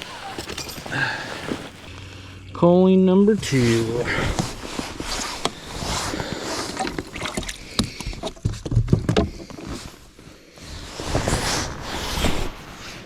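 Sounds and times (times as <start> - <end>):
handling noises on a boat: 0.0 - 2.2, 3.3 - 11.4.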